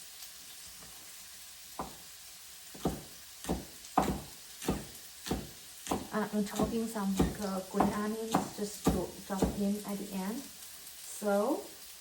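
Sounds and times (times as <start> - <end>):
vegetables sizzling in oil: 0.0 - 12.0
knife chopping on cutting board: 1.8 - 2.1, 2.7 - 9.6.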